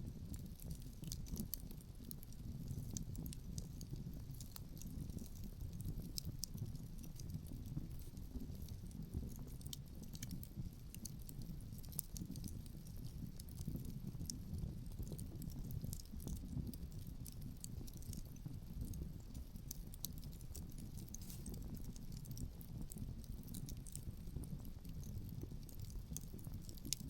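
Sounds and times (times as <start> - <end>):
low rumble of wind: 0.0 - 27.0
wood fire crackling: 0.0 - 27.0.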